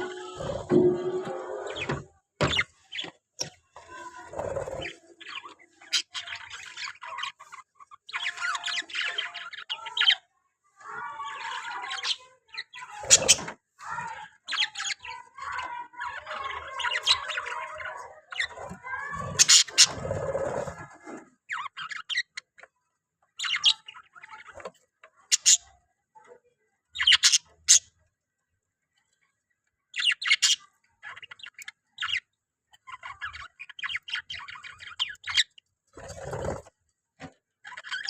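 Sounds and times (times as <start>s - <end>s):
budgerigar chattering: 18.4s - 20.8s.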